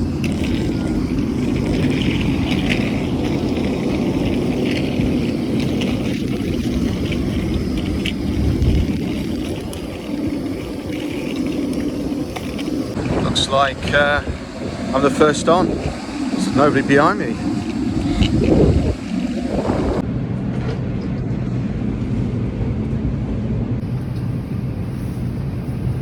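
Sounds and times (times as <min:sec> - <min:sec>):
faint rattles and clicks: 0:00.0 - 0:13.0
moving vehicle rumble: 0:00.0 - 0:26.0.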